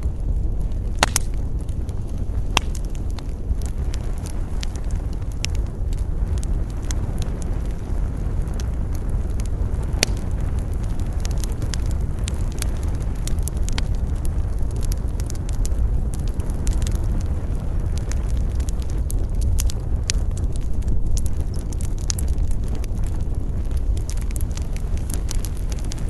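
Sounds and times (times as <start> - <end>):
campfire crackling and popping: 0.0 - 26.0
low rumble of wind: 0.0 - 26.0.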